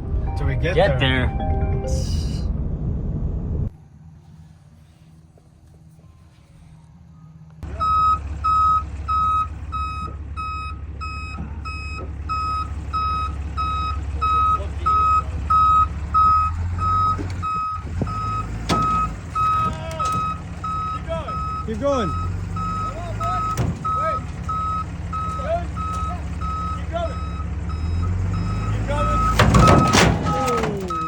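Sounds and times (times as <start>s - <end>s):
vehicle engine running: 0.0s - 31.0s
vehicle reversing alarm beeping: 7.1s - 31.0s.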